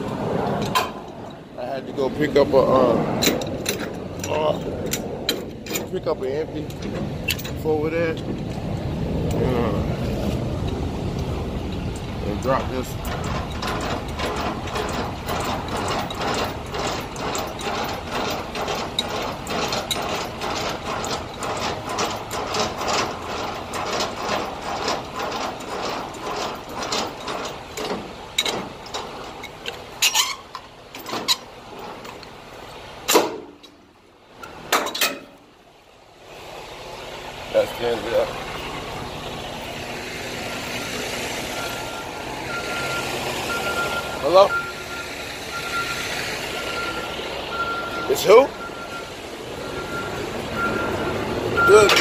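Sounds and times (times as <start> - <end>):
metal clanks: 0.0 - 35.6, 49.7 - 52.0
ratcheting clicks of hand crank: 12.5 - 32.4.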